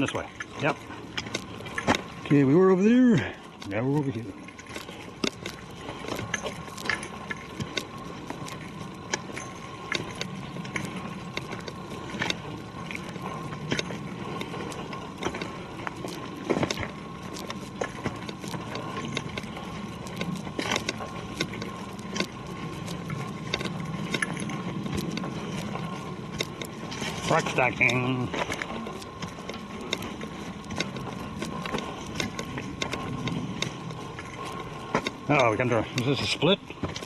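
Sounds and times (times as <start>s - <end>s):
footsteps on forest trail: 0.0s - 37.0s
rustling from walking: 0.0s - 37.0s.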